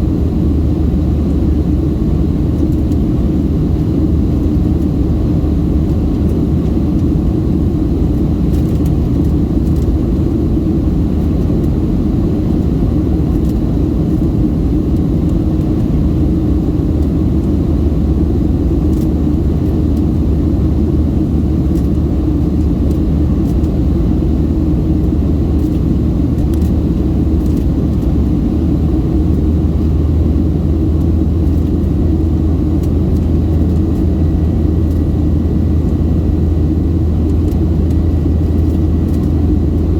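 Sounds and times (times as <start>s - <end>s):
jet engine rumble: 0.0s - 39.9s.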